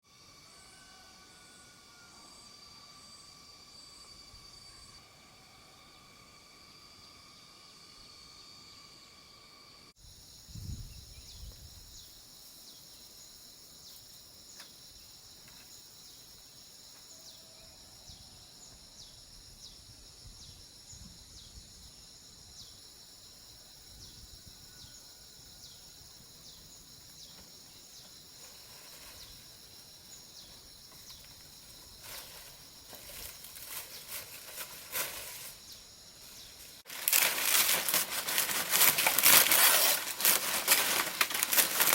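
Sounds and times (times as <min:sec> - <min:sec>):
crickets or cicadas droning: 0:00.0 - 0:41.9
repeating insect chirp: 0:00.1 - 0:41.9
dry crackling and rustling: 0:27.4 - 0:29.6, 0:30.9 - 0:41.9.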